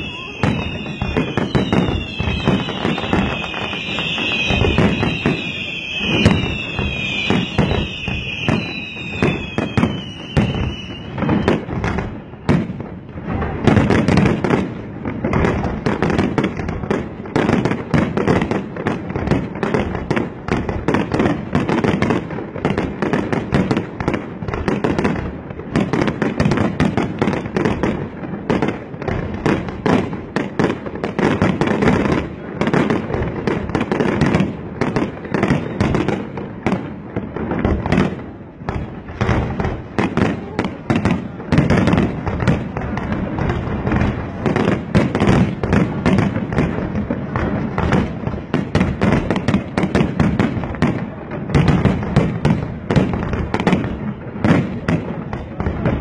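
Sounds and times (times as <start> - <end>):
falling firework whistles: 0.0 - 12.9
fireworks bangs and crackling: 0.0 - 56.0.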